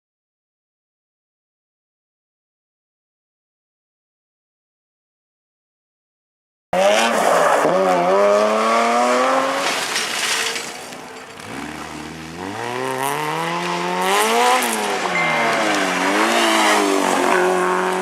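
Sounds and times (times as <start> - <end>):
rally car engine revving: 6.8 - 18.0
tyres on gravel: 8.3 - 18.0.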